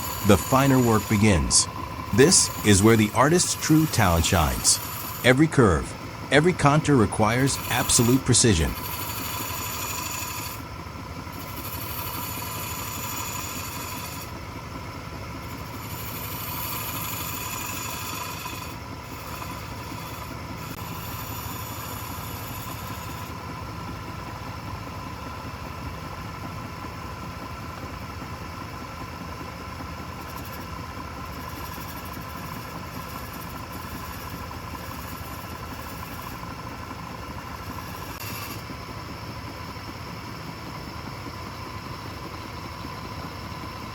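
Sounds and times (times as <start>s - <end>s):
lathe motor hum: 0.0s - 2.6s, 4.8s - 5.2s, 8.7s - 10.6s, 11.2s - 14.4s, 15.4s - 23.3s, 31.2s - 43.9s
tool cutting spinning wood: 0.0s - 2.6s, 4.8s - 5.2s, 7.6s - 10.7s, 11.3s - 14.4s, 15.5s - 23.3s, 30.3s - 38.7s.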